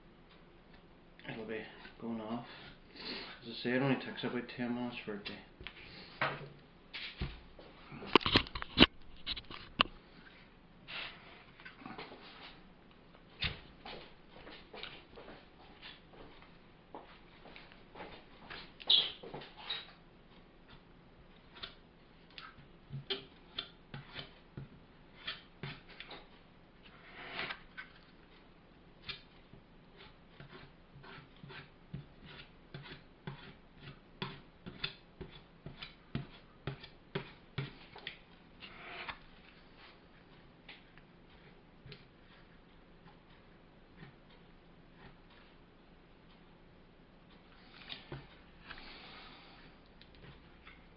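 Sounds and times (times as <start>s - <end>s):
filler knife scraping: 25.1s - 27.6s, 29.9s - 39.2s
filler knife tapping: 30.4s - 38.2s.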